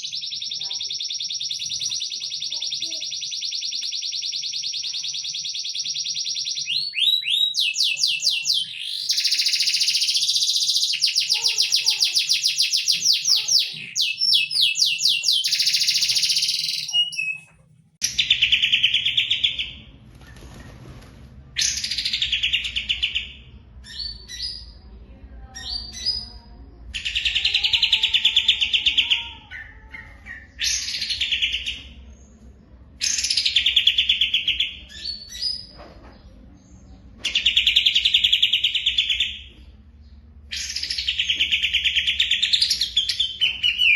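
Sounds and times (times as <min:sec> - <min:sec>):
songbirds trilling: 0:00.0 - 0:17.5.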